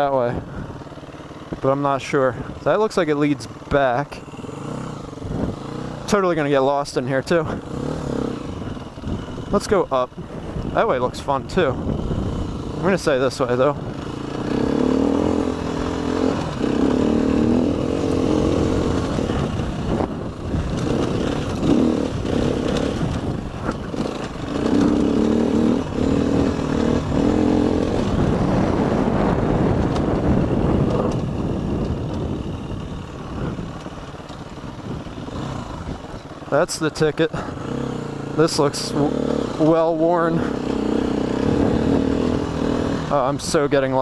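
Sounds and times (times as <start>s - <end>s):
dirt bike engine revving: 0.0s - 44.0s.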